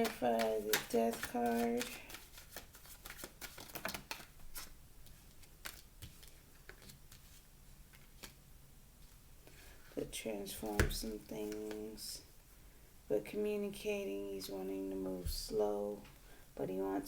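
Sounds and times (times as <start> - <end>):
cards being shuffled: 0.0 - 8.4.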